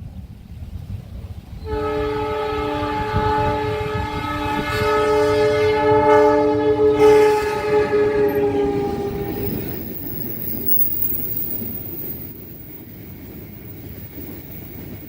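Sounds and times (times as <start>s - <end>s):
train horn chord: 1.6s - 9.8s.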